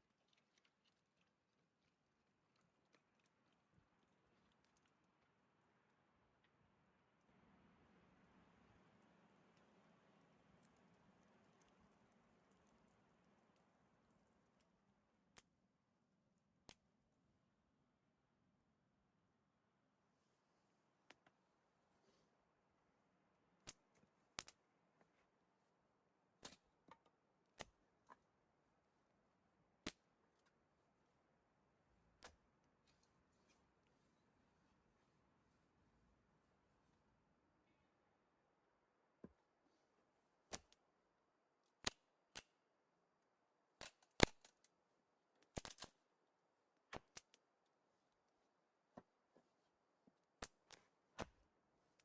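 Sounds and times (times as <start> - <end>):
sharp clicks or snaps: 24.4 - 24.6, 43.8 - 44.7, 45.4 - 46.0.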